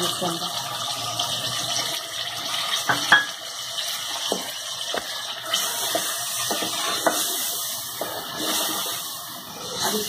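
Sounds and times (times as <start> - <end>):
chicken sizzling in hot oil: 0.0 - 10.0.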